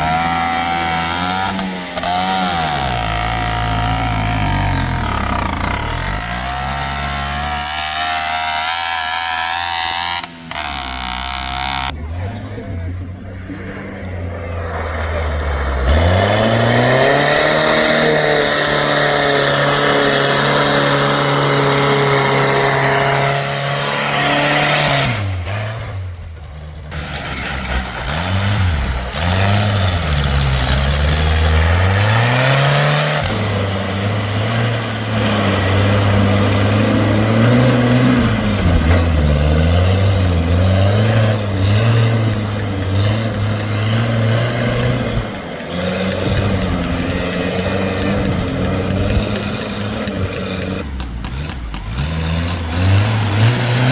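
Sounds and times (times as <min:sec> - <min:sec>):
diesel engine revving hard: 0:00.0 - 0:53.9.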